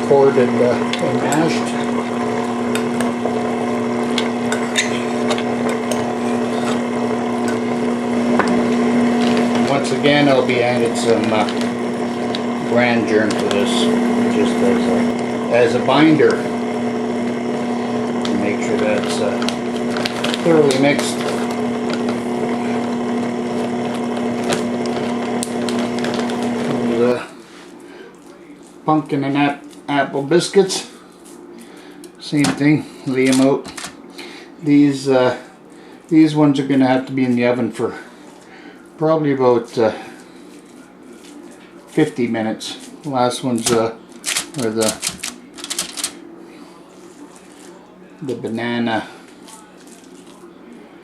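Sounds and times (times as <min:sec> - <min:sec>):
electric mixer humming: 0:00.0 - 0:28.0.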